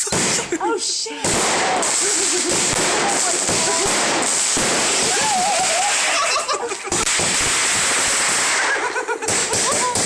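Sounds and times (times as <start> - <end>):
fireworks crackling and popping: 0.0 - 10.0
firework whistles: 4.2 - 8.9.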